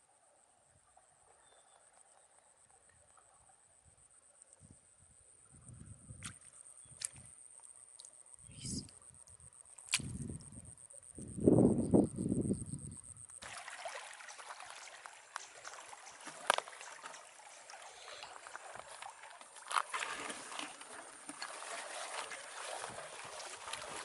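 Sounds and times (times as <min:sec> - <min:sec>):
water sloshing and trickling: 0:13.4 - 0:24.0.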